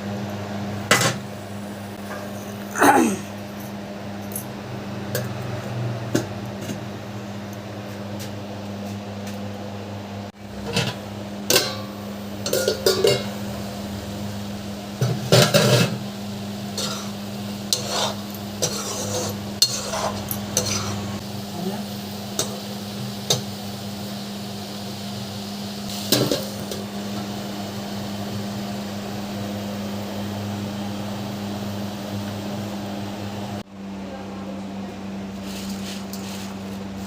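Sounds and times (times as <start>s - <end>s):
utensils clinking against pots: 10.6s - 13.4s, 15.0s - 16.0s, 16.7s - 21.2s.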